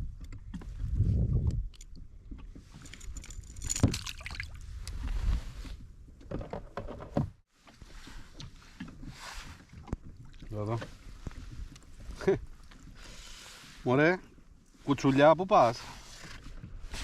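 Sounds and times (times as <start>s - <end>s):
water sloshing against kayak: 0.0s - 17.0s
clicks and knocks on boat: 6.1s - 9.0s.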